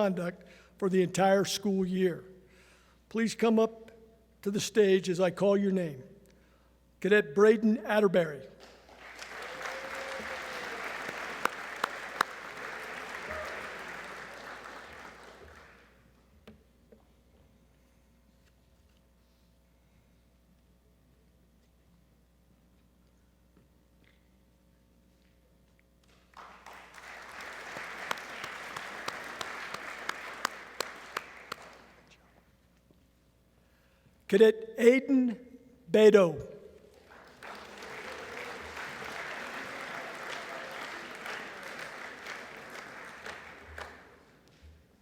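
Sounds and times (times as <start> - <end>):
audience applauding: 8.6 - 16.0, 26.3 - 32.0, 37.0 - 44.4
single sharp claps: 28.1 - 31.9.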